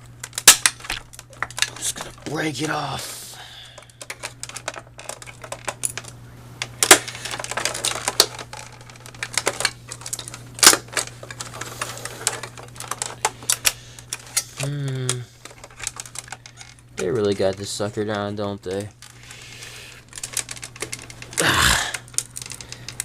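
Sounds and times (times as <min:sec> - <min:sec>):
loud plastic cracks: 0:00.0 - 0:01.9, 0:04.0 - 0:14.2
plastic clicking and creaking: 0:03.8 - 0:19.4, 0:20.0 - 0:23.0.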